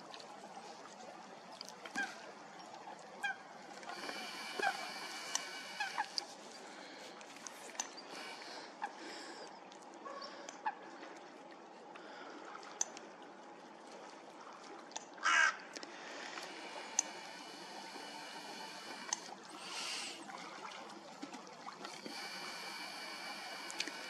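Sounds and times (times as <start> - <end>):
bird cawing: 3.2 - 6.2, 15.2 - 15.6
soft hiss: 3.8 - 8.7, 15.9 - 20.6, 21.9 - 24.0
small clicks: 19.0 - 19.3.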